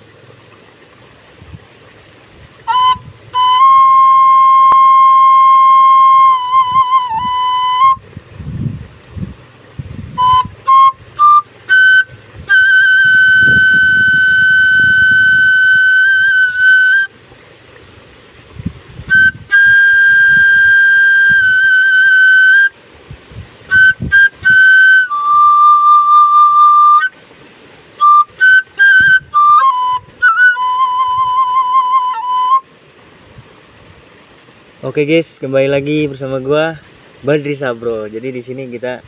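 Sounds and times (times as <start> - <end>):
wind rumbling on microphone: 0.0 - 34.9
bamboo flute playing: 2.6 - 8.3, 10.1 - 17.2, 18.9 - 27.3, 27.9 - 32.8.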